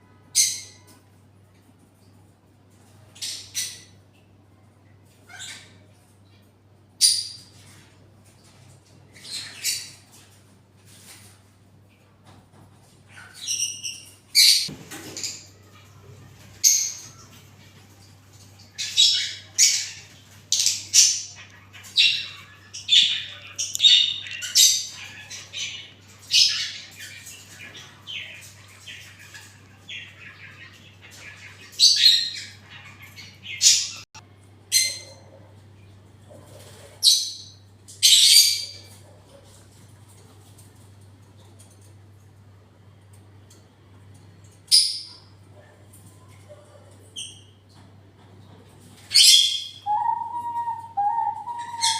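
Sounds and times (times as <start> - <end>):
parrots squawking: 18.7 - 34.1, 49.1 - 51.9.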